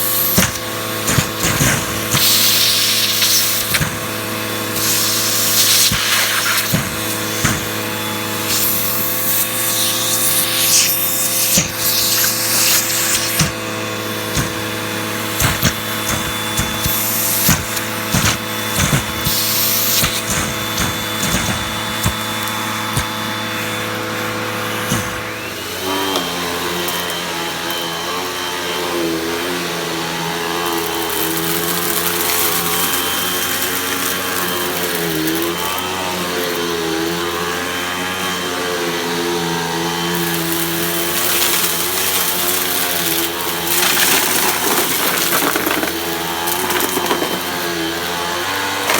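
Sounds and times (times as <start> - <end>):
vacuum cleaner motor running: 0.0 - 48.9
clicks and knocks: 43.7 - 47.7.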